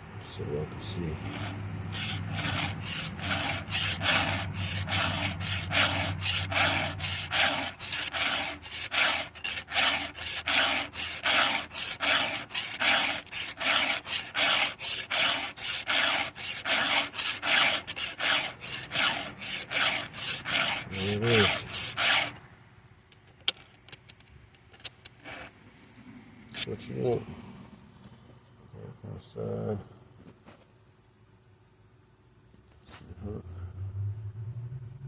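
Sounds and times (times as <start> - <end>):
file sharpening chainsaw chain: 1.2 - 22.4, 26.5 - 26.7.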